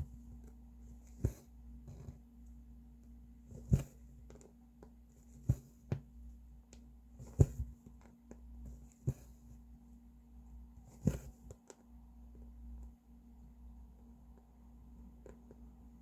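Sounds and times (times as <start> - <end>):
needle tapping through fabric: 0.0 - 2.3, 3.0 - 9.6, 10.8 - 11.9.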